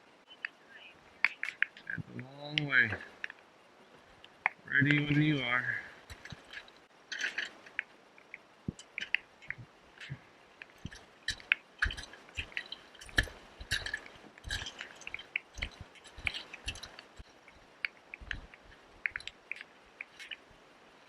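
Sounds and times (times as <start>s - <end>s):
water dripping and splashing: 6.0s - 20.6s.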